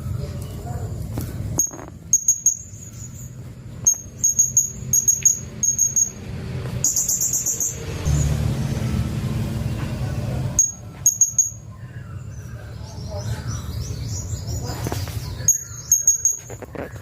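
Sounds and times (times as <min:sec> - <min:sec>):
low rumble: 0:08.0 - 0:11.0.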